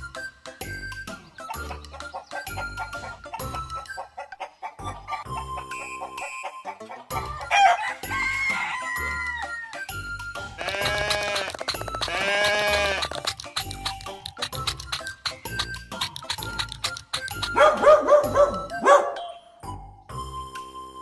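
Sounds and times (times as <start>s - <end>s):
background music with beat: 0.0s - 4.2s, 4.8s - 21.0s
rooster crowing: 7.4s - 9.8s.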